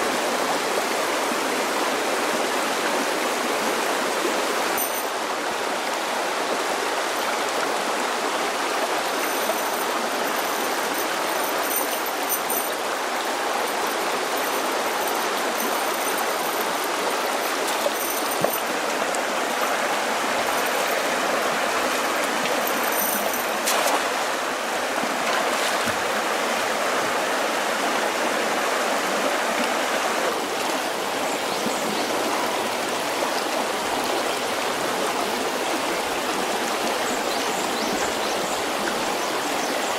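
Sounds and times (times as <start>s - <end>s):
stream of flowing water: 0.0s - 39.9s.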